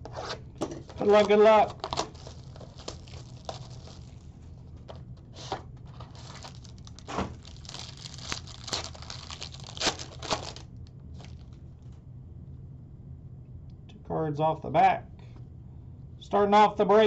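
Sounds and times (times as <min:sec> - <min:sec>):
card pack wrapper tearing: 0:00.9 - 0:04.3, 0:05.4 - 0:11.6.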